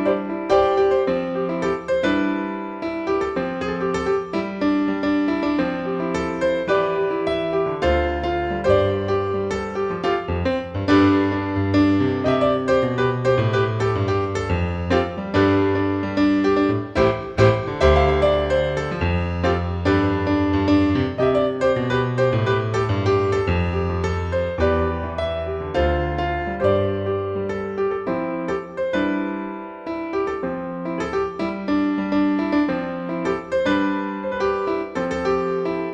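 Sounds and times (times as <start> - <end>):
keyboard music: 6.1 - 27.7.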